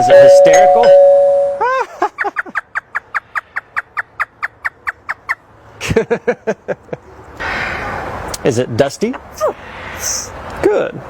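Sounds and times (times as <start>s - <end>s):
parrot cackling laugh: 1.6s - 7.1s.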